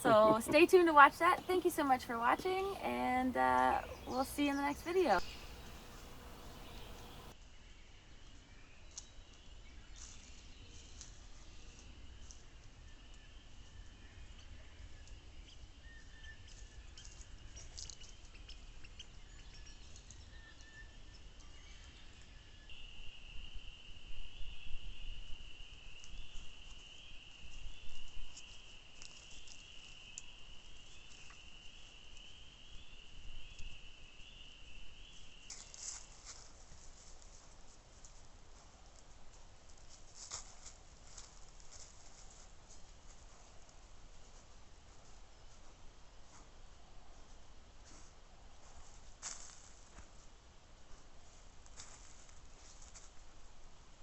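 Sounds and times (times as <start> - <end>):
insects trilling: 0.0 - 7.3.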